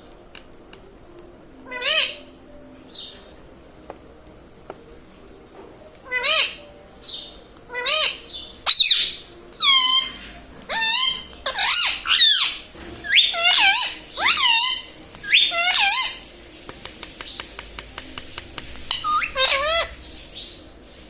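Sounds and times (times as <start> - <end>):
parrot high-pitched calls: 1.7 - 2.3, 6.0 - 6.6, 7.7 - 16.2, 18.9 - 20.0.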